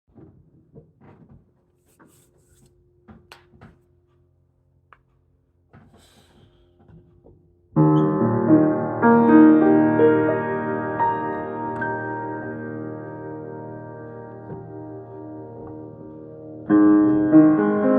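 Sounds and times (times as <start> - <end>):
faint knocks and shuffles: 0.1 - 7.6
improvised piano piece: 7.7 - 17.9.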